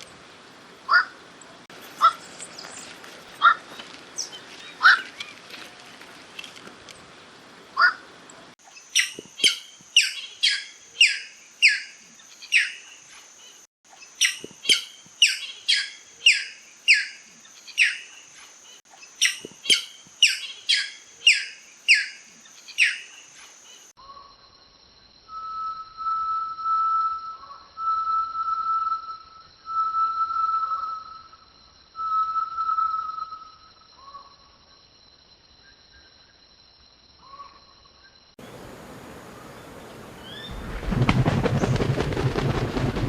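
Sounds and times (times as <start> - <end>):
long whistled tone: 25.2 - 33.8
bird singing falling notes: 38.4 - 41.9.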